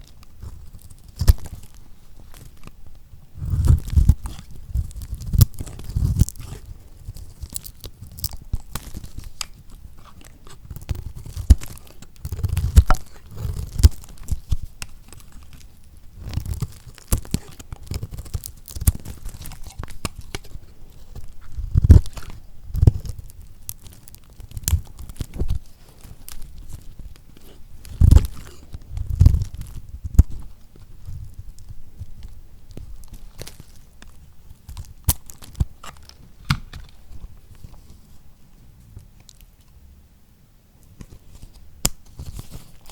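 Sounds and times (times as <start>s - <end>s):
knife crunching through hard soap: 3.4s - 30.5s, 33.0s - 37.0s.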